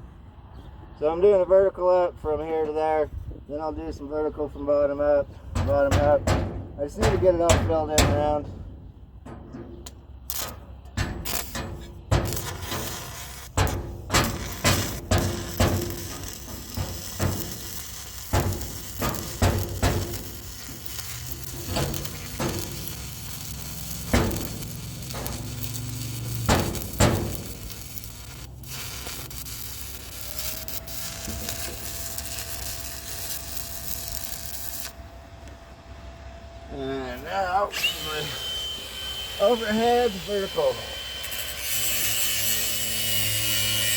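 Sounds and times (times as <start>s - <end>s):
welding arc crackling and sizzling: 10.2s - 35.0s, 37.2s - 43.9s.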